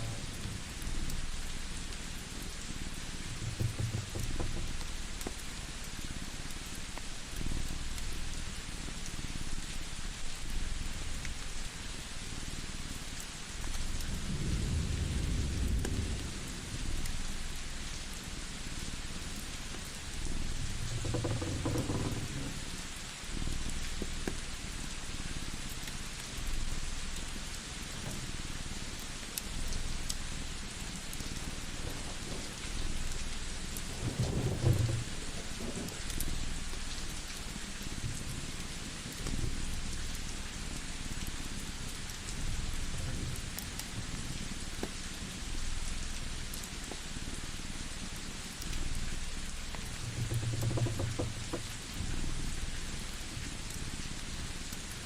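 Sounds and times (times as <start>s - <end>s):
steady hiss: 0.0s - 55.0s
wood fire crackling: 0.0s - 55.0s
wood fire popping: 18.6s - 37.4s, 48.6s - 52.1s.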